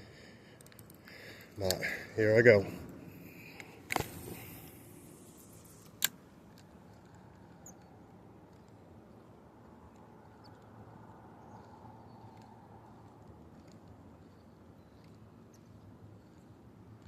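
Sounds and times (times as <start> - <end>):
sharp click: 3.6 - 7.9
light ticks: 9.6 - 17.0.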